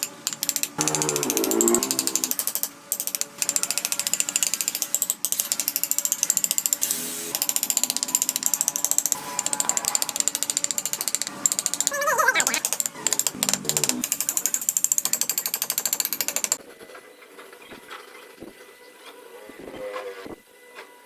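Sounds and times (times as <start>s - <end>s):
rapid mechanical clicking: 0.0s - 16.6s.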